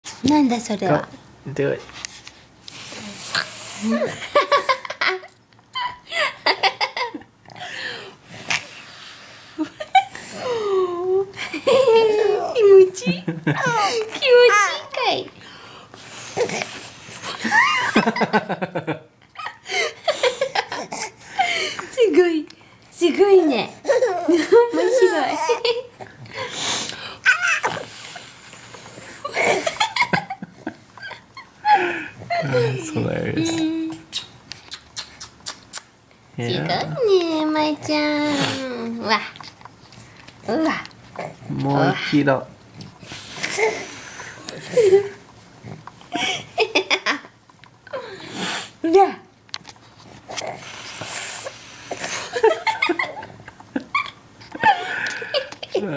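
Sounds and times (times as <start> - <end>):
baby laughing and squealing: 27.3 - 27.8
breathy puffs of air: 48.0 - 48.8
breathy blowing puff: 48.2 - 48.8, 50.6 - 52.3.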